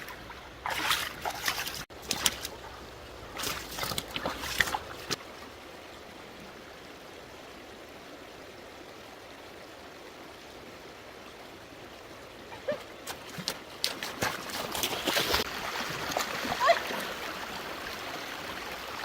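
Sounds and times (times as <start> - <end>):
water splashing: 0.0 - 5.2, 12.5 - 19.0
stream water flowing: 0.0 - 19.0.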